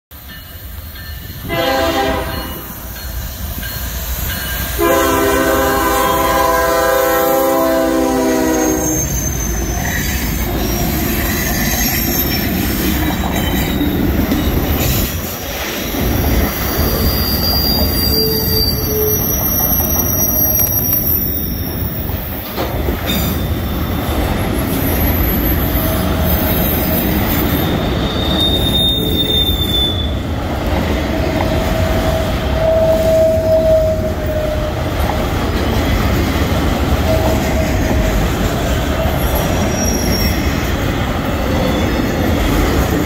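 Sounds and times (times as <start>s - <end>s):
train rumbling past: 0.1s - 43.0s
train horn blasts: 1.4s - 2.8s, 4.8s - 8.9s
high wheel squeal: 7.0s - 22.6s, 24.6s - 30.3s, 31.5s - 34.8s, 39.0s - 40.6s, 41.4s - 42.6s.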